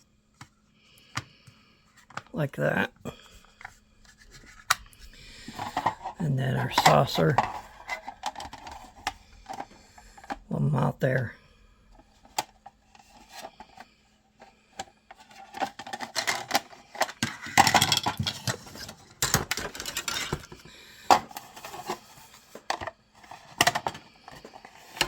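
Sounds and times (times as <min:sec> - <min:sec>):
plastic parts clicking and knocking: 0:02.0 - 0:02.4, 0:03.5 - 0:10.5, 0:11.9 - 0:25.0
clattering and rustling: 0:03.6 - 0:06.2, 0:06.8 - 0:10.4, 0:12.2 - 0:25.0.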